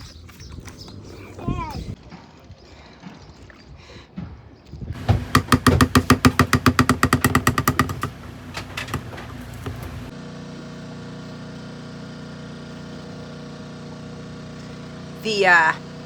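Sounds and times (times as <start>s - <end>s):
machine clattering: 5.0s - 10.1s.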